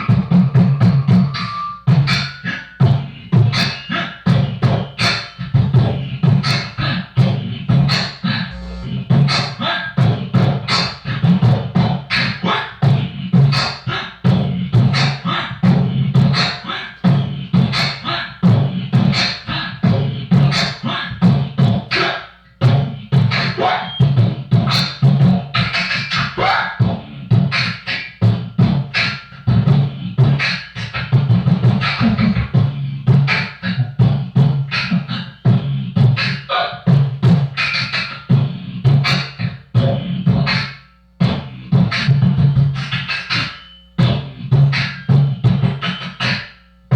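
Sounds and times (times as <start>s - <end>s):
vocal beatboxing: 0.0s - 46.6s
hummed bass line: 8.5s - 9.3s.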